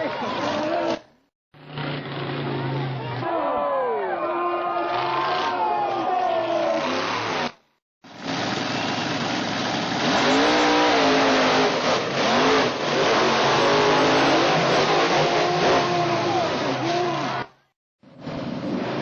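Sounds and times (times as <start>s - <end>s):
truck engine revving: 1.6s - 3.2s, 8.2s - 19.0s.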